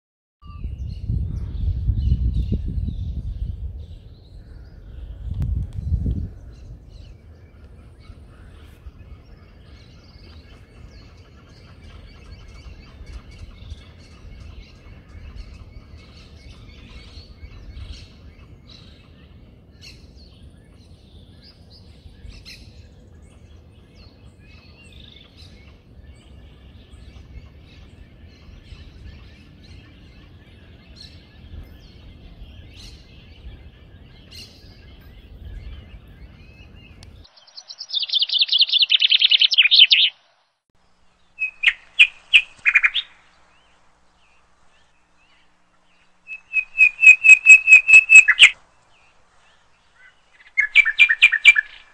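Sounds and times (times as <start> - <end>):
small birds chirping: 0.4 - 51.9
low outdoor rumble: 0.6 - 37.4
rapid chattering bird call: 46.2 - 48.6.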